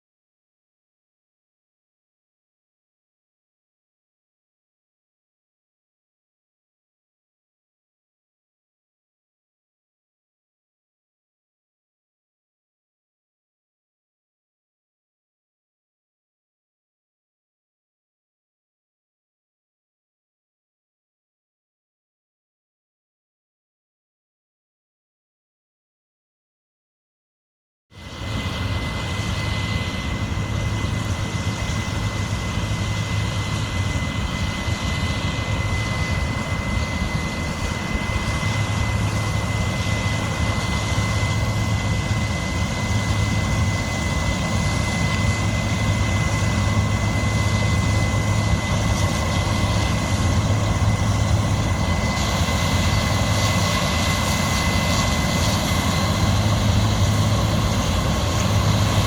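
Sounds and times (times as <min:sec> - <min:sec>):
high whine: 0:28.0 - 0:59.0.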